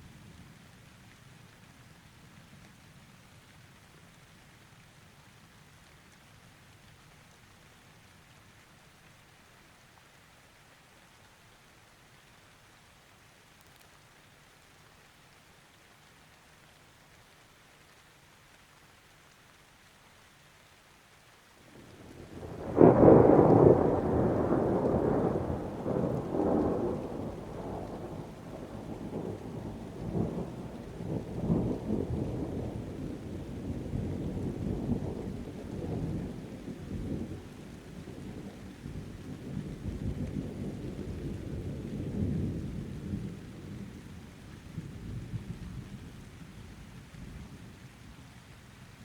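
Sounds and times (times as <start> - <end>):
rain falling: 0.0 - 49.0
thunder rumbling: 21.8 - 46.8.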